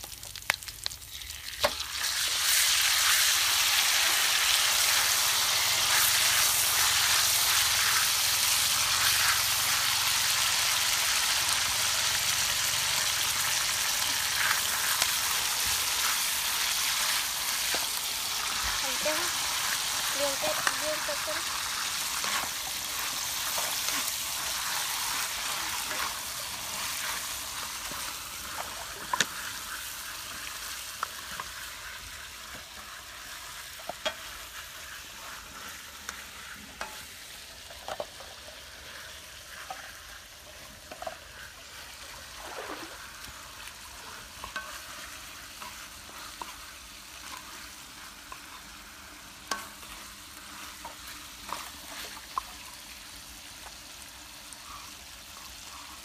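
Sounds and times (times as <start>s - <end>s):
food sizzling in a wok: 0.0s - 56.0s
wooden spatula scraping wok: 13.4s - 52.4s.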